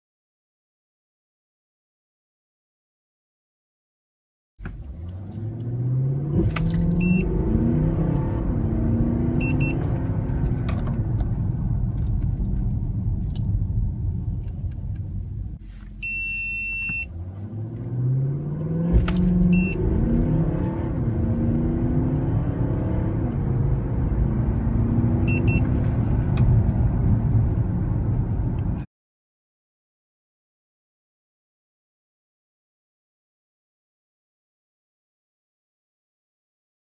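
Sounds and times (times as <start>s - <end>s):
diesel engine accelerating: 4.6s - 16.1s, 17.0s - 28.9s
electronic beeps: 7.0s - 7.3s, 9.3s - 9.8s, 16.0s - 17.1s, 19.5s - 19.8s, 25.3s - 25.8s.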